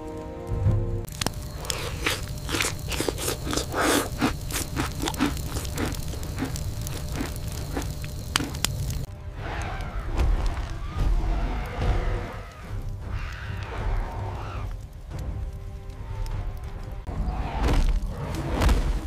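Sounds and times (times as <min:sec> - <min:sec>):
crunchy biting and chewing: 0:01.1 - 0:09.1.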